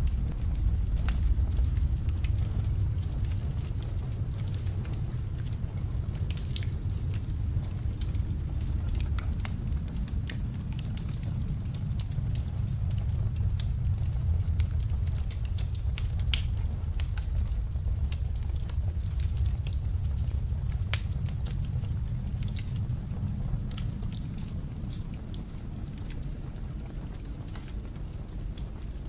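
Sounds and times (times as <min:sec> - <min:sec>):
snowstorm wind rumble: 0:00.0 - 0:29.0
wood fire crackling: 0:00.0 - 0:29.0.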